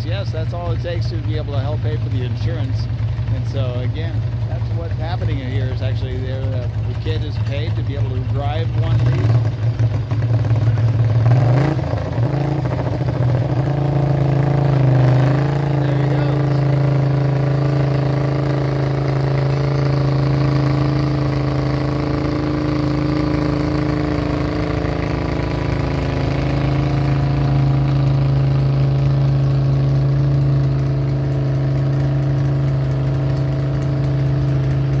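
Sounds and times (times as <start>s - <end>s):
lawn tractor engine running: 0.0s - 35.0s.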